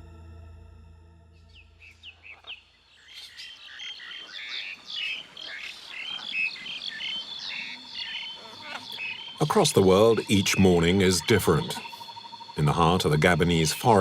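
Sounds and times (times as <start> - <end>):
low hum: 0.0 - 2.8
birds chirping and calling: 1.5 - 14.0.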